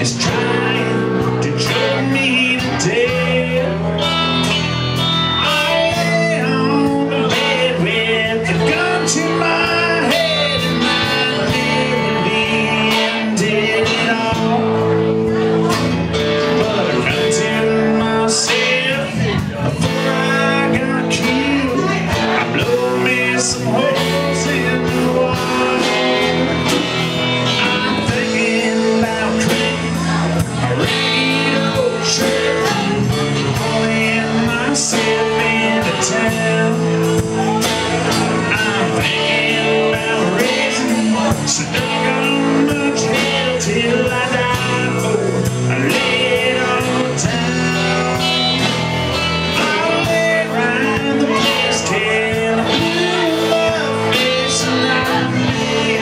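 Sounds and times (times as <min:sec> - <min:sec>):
live band playing: 0:00.0 - 0:56.0.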